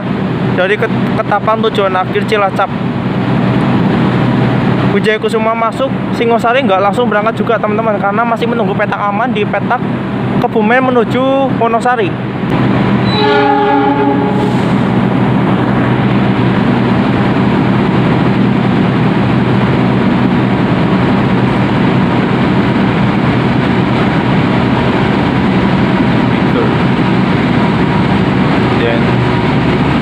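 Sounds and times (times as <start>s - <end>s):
diesel engine rumble: 0.0s - 30.0s
rail noise: 0.0s - 30.0s
train horn blast: 13.0s - 15.0s.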